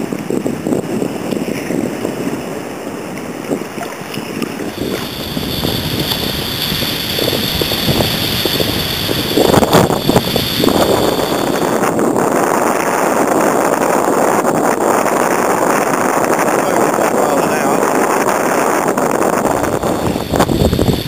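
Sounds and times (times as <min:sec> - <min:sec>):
water splashing around kayak: 0:00.0 - 0:12.1
wind buffeting microphone: 0:00.0 - 0:21.0.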